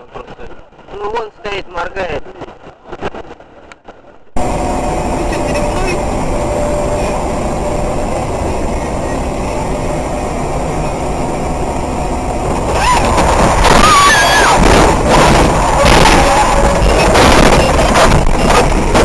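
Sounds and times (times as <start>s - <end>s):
high-pitched wavering squeals: 4.4s - 19.0s
vehicle rumbling on road: 4.4s - 19.0s.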